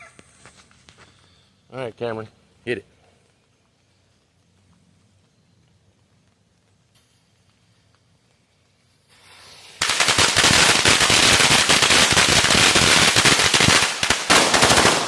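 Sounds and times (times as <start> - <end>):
firecracker string crackling: 0.0 - 15.0
fuse hiss: 6.8 - 14.1.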